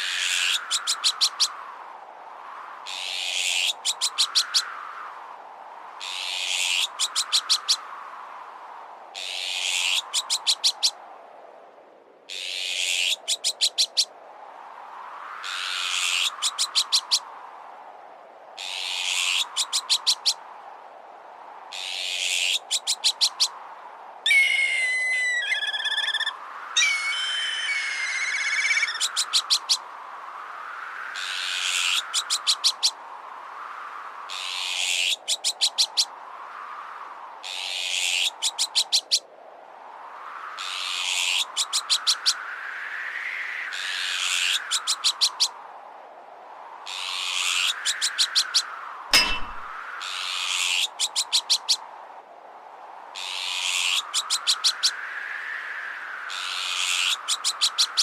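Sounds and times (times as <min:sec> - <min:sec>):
kite whistling calls: 0:24.3 - 0:29.6
magpie alarm calls: 0:24.3 - 0:29.7.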